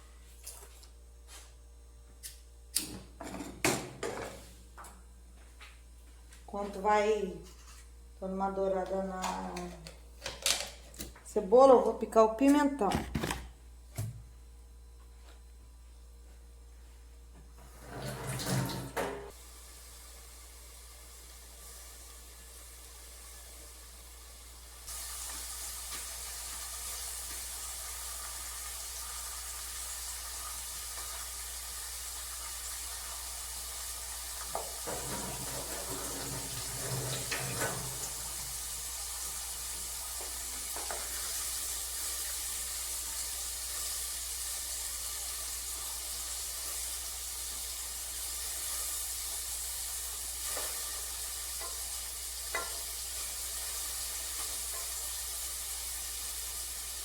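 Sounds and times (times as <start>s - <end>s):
cookware knocks and scrapes: 3.2s - 4.4s
onion sizzling in a pan: 19.3s - 57.0s.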